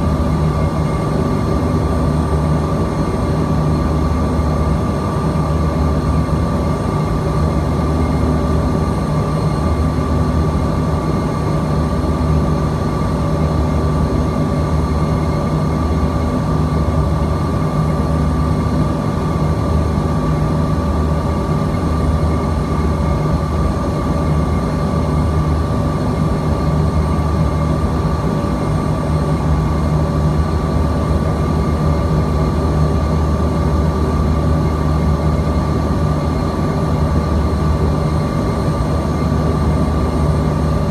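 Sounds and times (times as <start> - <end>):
jet cabin drone: 0.0 - 40.9.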